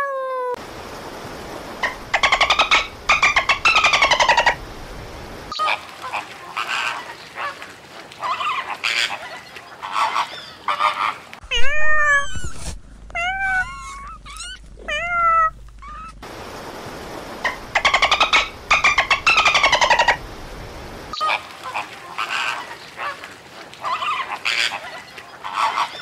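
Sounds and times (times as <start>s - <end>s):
low hum: 0.6s - 5.5s, 11.4s - 21.1s
cat meowing: 11.5s - 16.2s
dolphin squawks: 13.2s - 16.2s, 23.8s - 26.0s.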